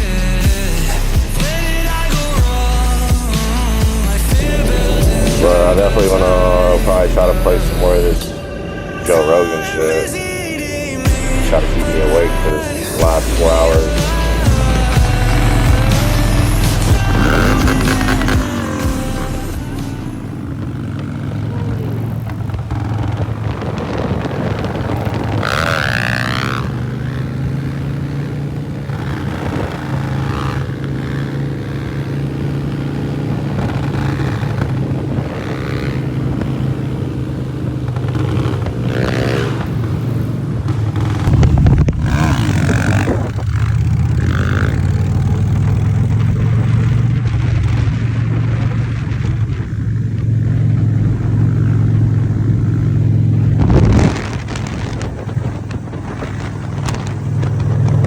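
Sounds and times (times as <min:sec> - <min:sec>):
vehicle engine and road drone: 0:00.0 - 0:58.0.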